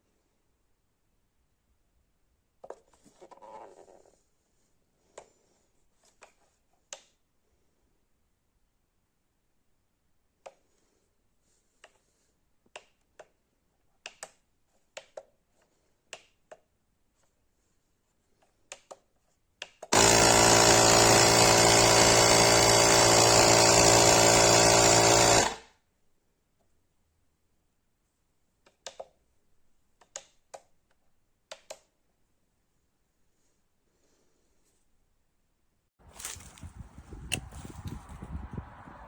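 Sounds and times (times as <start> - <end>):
air compressor motor running: 19.9 - 25.6.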